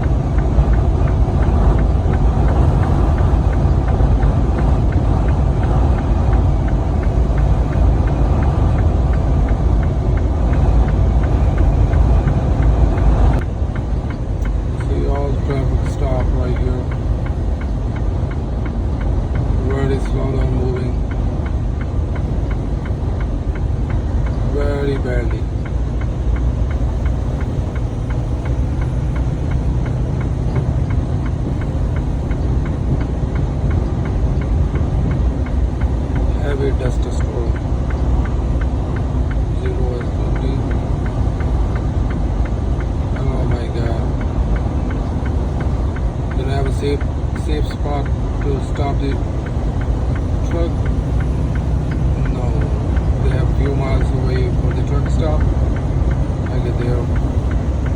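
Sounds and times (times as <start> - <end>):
wind noise: 0.0 - 14.7
faint ticking: 0.0 - 57.9
wind and road noise rumble: 0.0 - 57.9.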